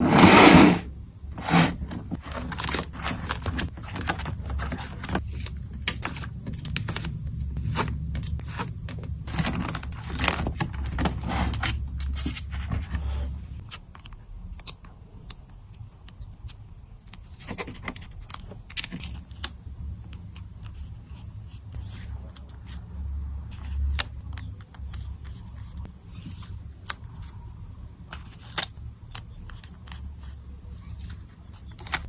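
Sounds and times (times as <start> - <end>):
plastic packaging rustling: 2.0 - 6.1.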